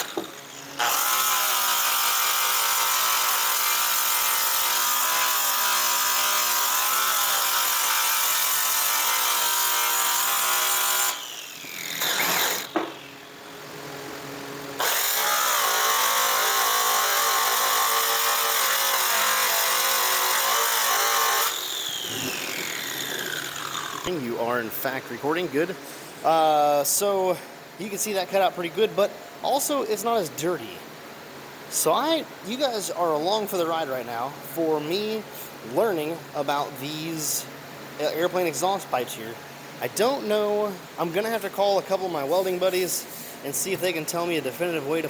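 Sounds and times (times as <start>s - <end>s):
power sander on metal: 0.0s - 13.2s, 14.8s - 24.1s.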